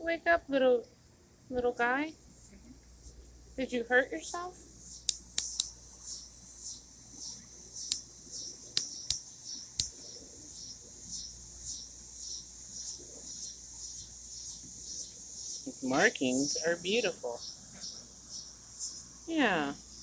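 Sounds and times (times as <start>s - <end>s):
insects chorus: 0.7s - 20.0s
sharp clicks: 5.1s - 5.8s, 7.8s - 8.1s, 8.7s - 10.0s.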